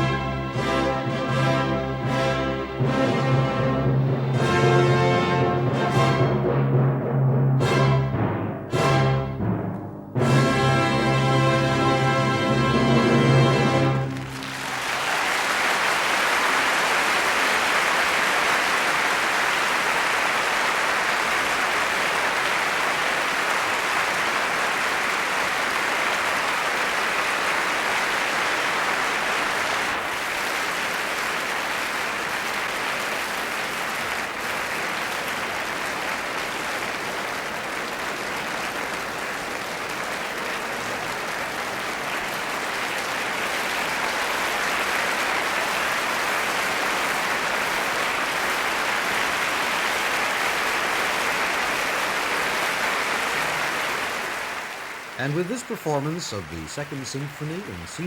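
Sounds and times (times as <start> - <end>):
audience applauding: 12.7 - 58.0.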